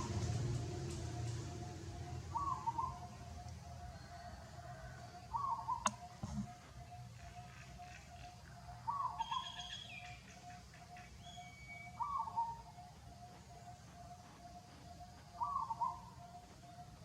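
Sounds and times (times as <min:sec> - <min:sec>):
higher bird chirps: 0:00.0 - 0:04.3, 0:05.2 - 0:17.0
steady pulsing bird note: 0:00.0 - 0:17.0
sharp click: 0:05.8 - 0:06.5.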